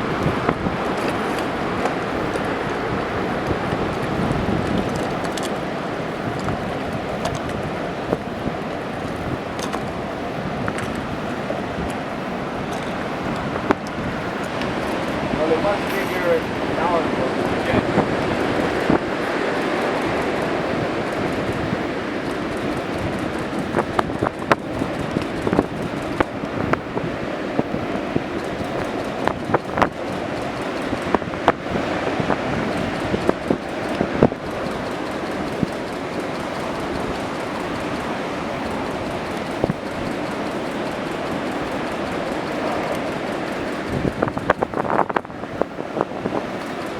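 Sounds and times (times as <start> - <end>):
ocean surf: 0.0 - 46.9
wind on microphone: 0.0 - 46.9
sharp clicks: 12.7 - 26.8, 28.2 - 45.3, 46.3 - 46.9.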